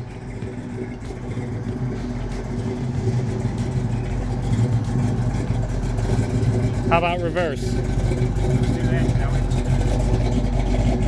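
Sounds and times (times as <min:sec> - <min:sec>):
car engine exhaust note: 0:00.0 - 0:11.0.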